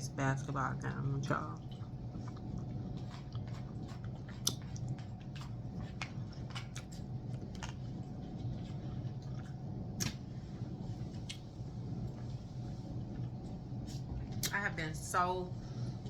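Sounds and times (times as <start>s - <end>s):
steady low hum: 0.0s - 16.0s
person chewing food: 1.6s - 12.4s.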